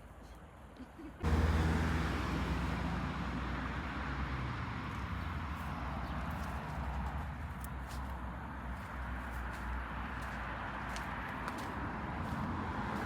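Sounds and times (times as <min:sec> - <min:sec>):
vehicle passing on road: 0:01.2 - 0:13.0.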